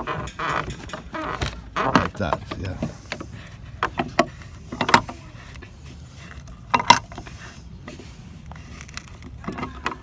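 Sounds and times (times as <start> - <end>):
wooden board knocking: 0.0 - 3.0.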